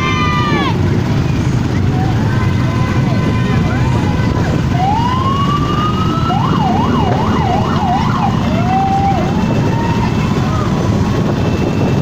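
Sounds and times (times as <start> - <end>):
rumble of vehicle engines: 0.0 - 12.0
siren wailing and yelping: 3.5 - 12.0.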